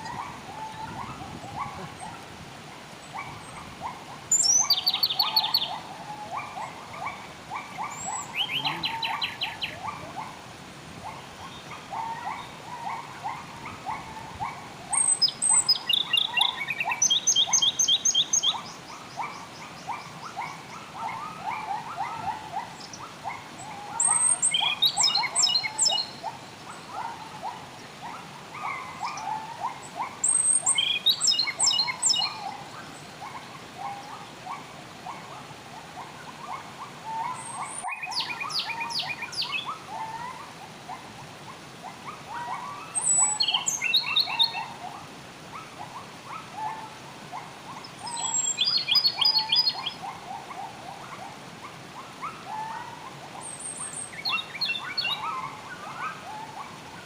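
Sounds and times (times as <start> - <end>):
birds chirping: 0.0 - 35.3, 36.0 - 40.4, 41.9 - 45.0, 47.7 - 51.3, 52.0 - 57.0.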